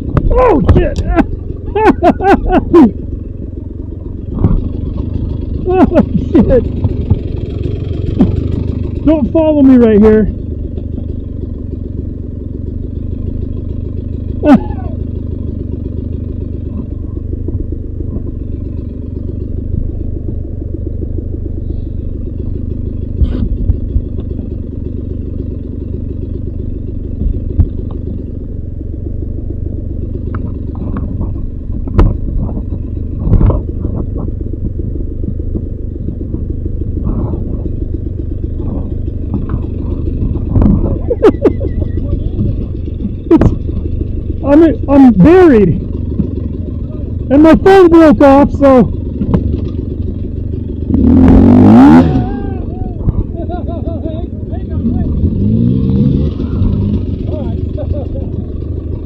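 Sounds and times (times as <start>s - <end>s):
dirt bike engine running: 0.0s - 59.0s
short knocks and clatters: 30.2s - 44.4s, 49.0s - 50.3s.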